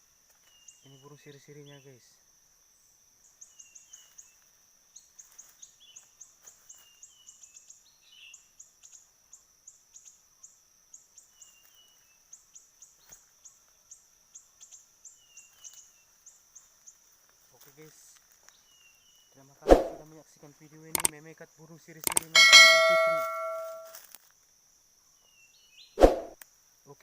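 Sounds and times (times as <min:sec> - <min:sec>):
small birds chirping: 0:11.1 - 0:20.0
high-pitched whine with ticks: 0:22.1 - 0:23.9.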